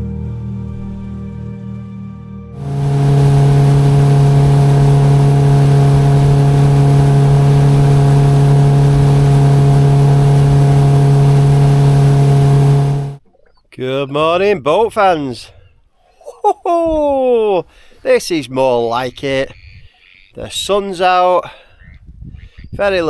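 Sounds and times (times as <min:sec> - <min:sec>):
outboard motor running: 0:02.6 - 0:13.2.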